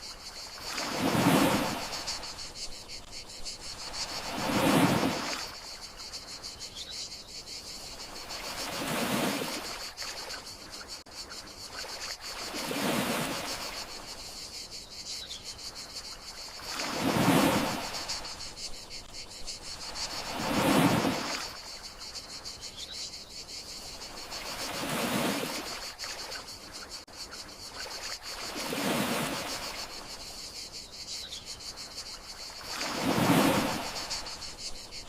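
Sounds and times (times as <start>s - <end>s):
sea waves washing ashore: 0.0s - 6.2s, 8.0s - 10.7s, 11.7s - 14.2s, 16.2s - 22.1s, 24.0s - 26.4s, 27.7s - 30.4s, 32.0s - 35.0s
crickets chirring: 0.0s - 35.0s.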